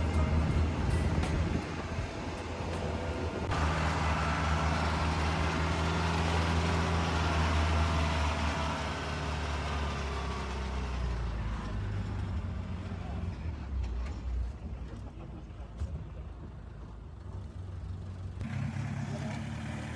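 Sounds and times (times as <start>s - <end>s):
truck engine droning: 0.0s - 19.9s.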